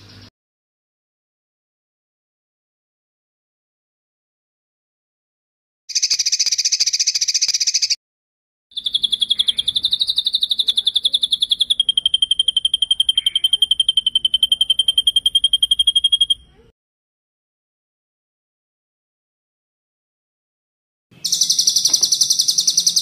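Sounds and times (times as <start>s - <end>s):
songbird trilling: 5.9s - 8.0s, 8.8s - 16.5s, 21.2s - 23.0s.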